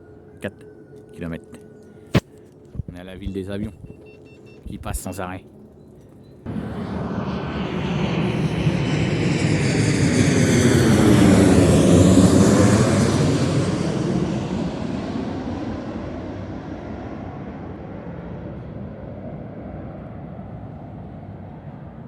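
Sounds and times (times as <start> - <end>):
jet airliner flying overhead: 4.4 - 22.0.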